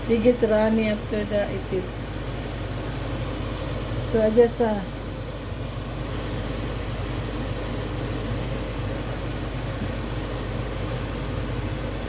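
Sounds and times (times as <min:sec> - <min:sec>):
steady machine hum with hiss: 0:00.0 - 0:12.0.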